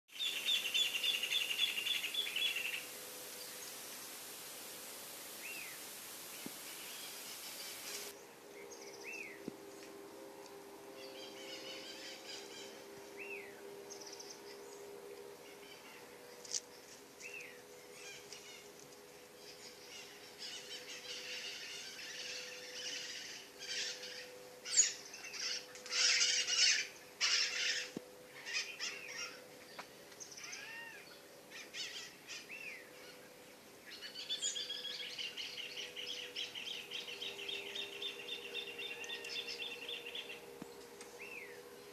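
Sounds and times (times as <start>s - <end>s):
bird trill: 0.1s - 3.0s, 19.6s - 29.4s, 33.9s - 40.5s
birds chirping and singing: 0.1s - 4.4s, 5.1s - 9.9s, 10.9s - 41.9s
faint steady hum: 0.2s - 41.9s.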